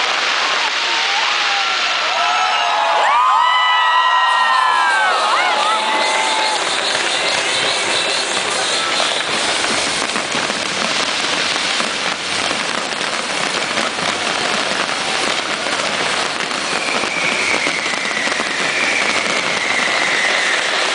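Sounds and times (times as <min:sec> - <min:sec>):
fireworks crackling: 0:00.0 - 0:20.9
high whistle sliding down: 0:00.8 - 0:10.2, 0:16.4 - 0:20.9.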